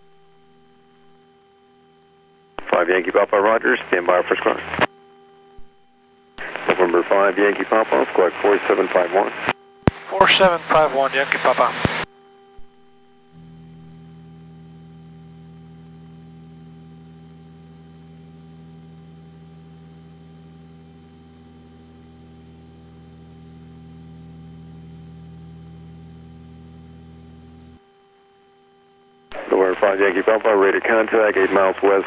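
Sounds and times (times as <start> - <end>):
electrical hum: 0.0 - 32.0.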